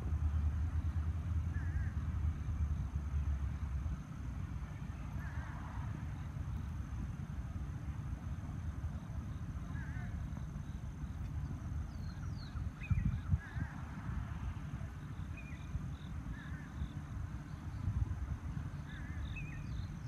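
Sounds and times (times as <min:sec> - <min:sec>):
small birds chirping: 0:08.9 - 0:13.8, 0:14.7 - 0:20.0.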